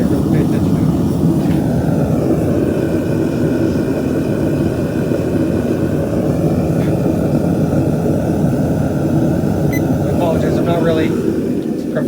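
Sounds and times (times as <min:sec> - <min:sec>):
faint steady tones: 0:00.0 - 0:12.0
forge rushing roar: 0:00.0 - 0:12.0.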